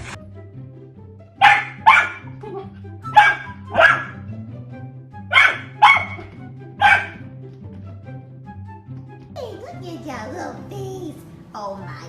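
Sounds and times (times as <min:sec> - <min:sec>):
dog barking: 0:01.4 - 0:02.4, 0:03.1 - 0:04.3, 0:05.3 - 0:07.2.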